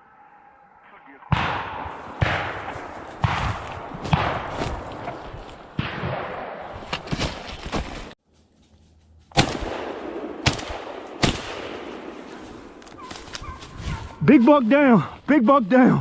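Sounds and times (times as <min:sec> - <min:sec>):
shotgun blasts: 0:01.3 - 0:05.0, 0:05.8 - 0:06.8, 0:09.3 - 0:12.4.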